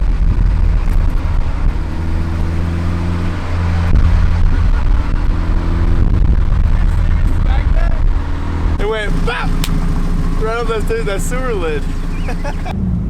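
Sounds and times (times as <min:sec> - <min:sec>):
car engine droning: 0:01.8 - 0:05.9, 0:08.8 - 0:12.8.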